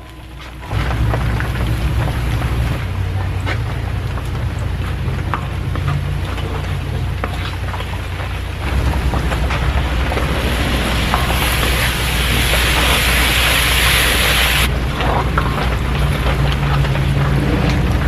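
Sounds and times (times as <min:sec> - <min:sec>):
low steady rumble: 0:00.0 - 0:18.0
rain falling: 0:00.0 - 0:18.0
loud hiss: 0:08.7 - 0:14.7.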